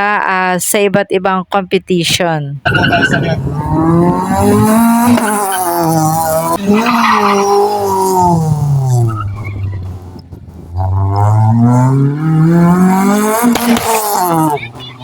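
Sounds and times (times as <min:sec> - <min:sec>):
tyres squealing: 0:02.6 - 0:10.1, 0:13.4 - 0:15.0
car engine revving: 0:02.7 - 0:15.0.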